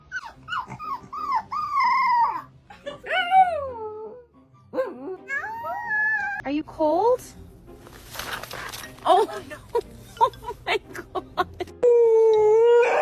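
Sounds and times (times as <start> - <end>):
dog howling: 12.1 - 13.0.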